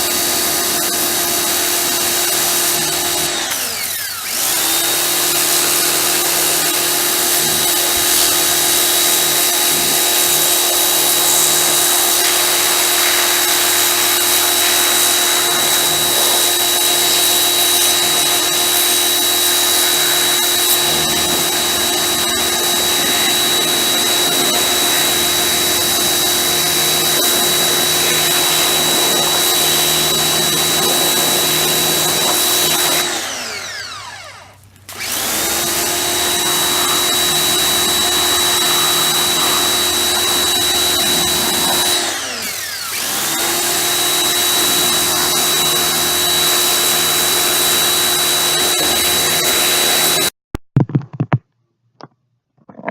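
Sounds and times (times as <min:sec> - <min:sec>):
pressure washer motor running: 0:00.0 - 0:50.3
hiss of water spray: 0:07.6 - 0:18.0.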